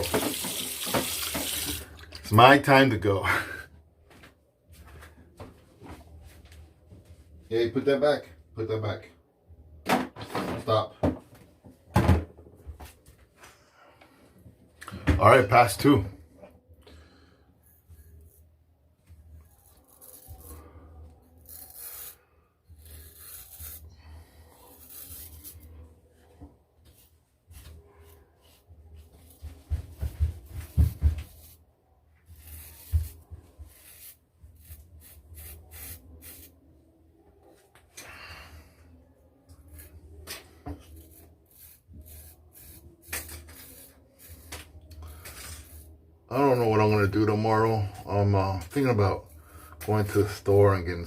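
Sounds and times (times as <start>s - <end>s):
razor scraping stubble: 19.4s - 20.7s, 21.3s - 23.9s, 24.5s - 25.8s, 31.2s - 31.6s, 32.2s - 36.6s, 39.6s - 45.9s.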